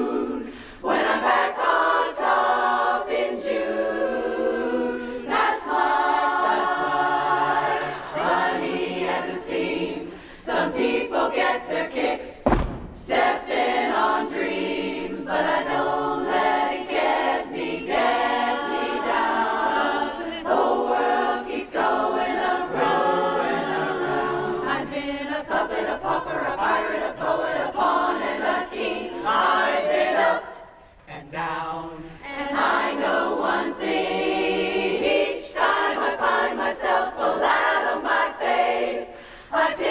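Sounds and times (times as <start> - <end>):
women's chorus singing a cappella: 0.0 - 39.9
low thump: 12.4 - 13.6.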